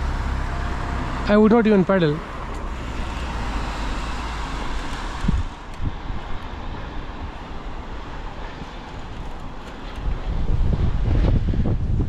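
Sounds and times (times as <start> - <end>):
bike tyres rumbling on road: 2.2 - 12.0
wind on microphone: 2.7 - 12.0.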